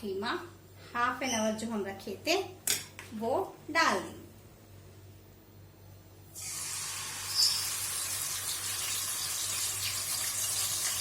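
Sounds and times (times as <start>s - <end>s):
meat sizzling in hot oil: 6.4s - 11.0s.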